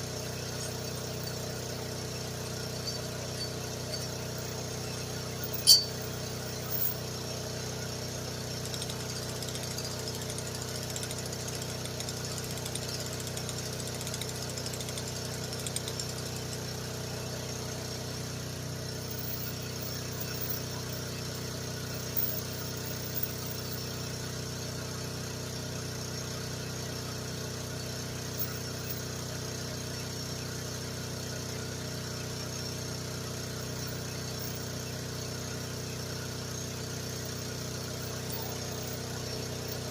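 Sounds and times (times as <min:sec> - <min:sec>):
mini excavator engine running: 0:00.0 - 0:39.9
sharp metal clank: 0:05.5 - 0:06.2.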